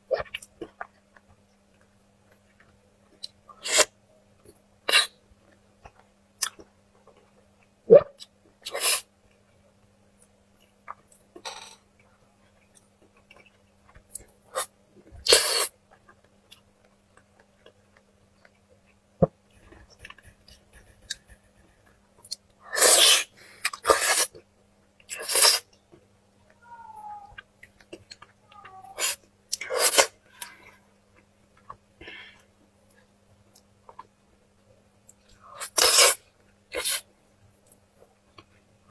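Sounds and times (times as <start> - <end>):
faint low hum: 16.5 - 22.7
slurping while eating: 22.7 - 24.3, 25.1 - 25.6, 29.0 - 30.1, 35.6 - 36.2.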